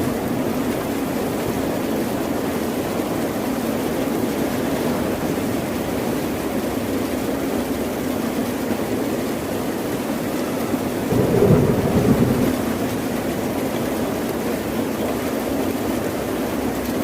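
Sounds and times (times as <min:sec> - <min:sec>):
ocean surf: 0:11.1 - 0:13.6.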